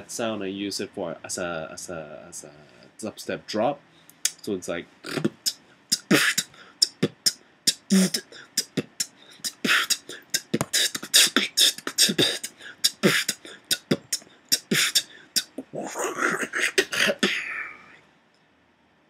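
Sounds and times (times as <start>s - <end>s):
beatboxing mouth clicks and hisses: 4.1s - 17.6s
beatboxed bass hits: 4.3s - 15.6s.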